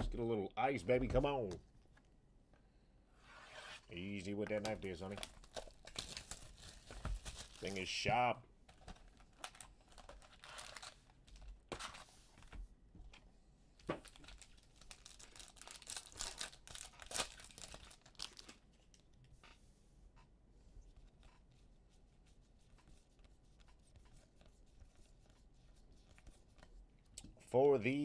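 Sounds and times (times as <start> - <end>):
plastic wrapping tearing and crinkling: 4.7 - 7.8, 8.8 - 11.4, 14.0 - 18.6.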